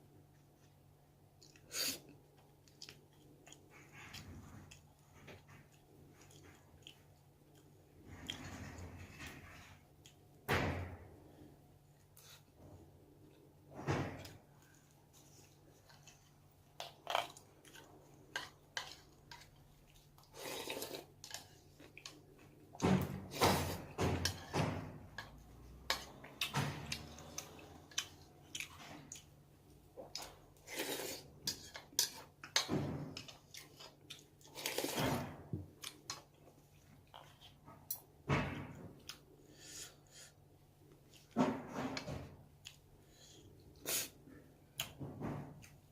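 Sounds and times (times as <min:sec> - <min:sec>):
person chewing: 0:01.3 - 0:08.4, 0:14.6 - 0:22.6, 0:26.1 - 0:32.5.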